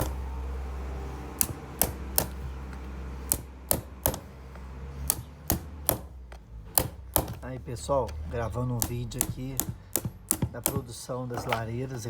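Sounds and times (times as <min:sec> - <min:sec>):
low steady hum: 0:00.0 - 0:12.0
sharp knocks: 0:05.1 - 0:07.6, 0:08.6 - 0:11.8.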